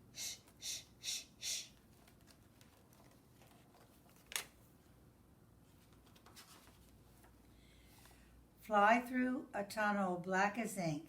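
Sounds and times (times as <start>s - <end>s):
book page turning: 1.8s - 4.6s, 5.7s - 7.4s.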